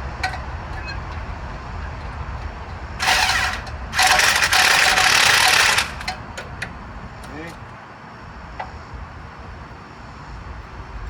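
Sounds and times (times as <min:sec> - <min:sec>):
power wrench running: 0:00.2 - 0:06.3.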